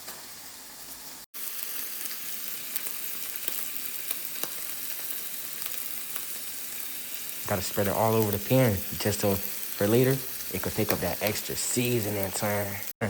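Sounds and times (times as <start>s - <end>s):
food frying in a pan: 0.0s - 13.0s.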